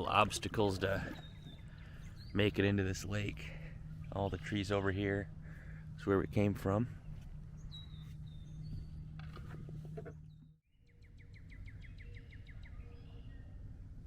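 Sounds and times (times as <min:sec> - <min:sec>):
songbirds whistling: 0:00.8 - 0:02.8, 0:07.0 - 0:09.2, 0:09.8 - 0:13.6.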